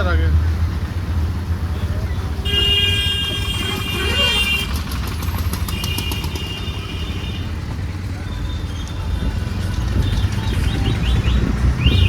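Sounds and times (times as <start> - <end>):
low rumble of moving vehicle: 0.0 - 12.0
vehicle horn honking: 2.4 - 4.8, 5.6 - 7.5.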